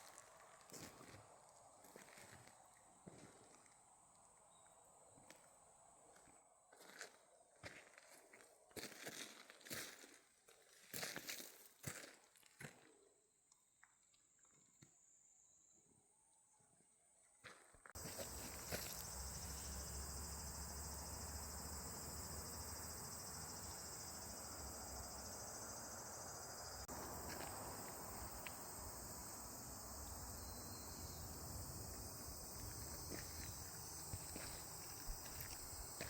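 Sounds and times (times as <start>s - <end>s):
shrill insect chorus: 18.0s - 36.0s.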